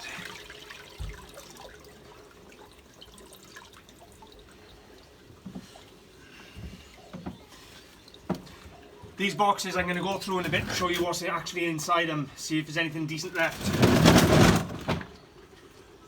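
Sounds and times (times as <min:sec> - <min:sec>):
water dripping and trickling: 0:00.0 - 0:13.6, 0:14.8 - 0:16.0
soft knocks: 0:08.3 - 0:08.6.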